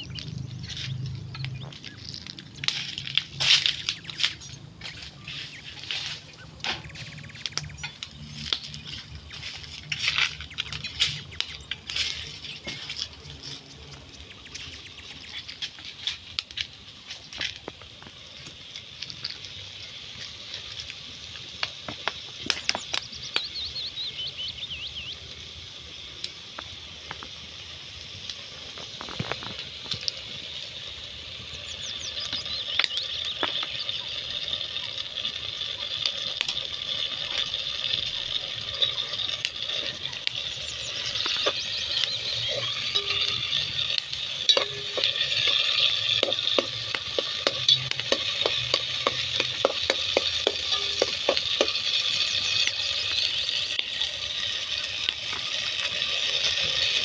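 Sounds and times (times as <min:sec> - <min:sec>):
steady high hiss: 0:00.0 - 0:57.0
food preparation taps and clicks: 0:46.1 - 0:51.8.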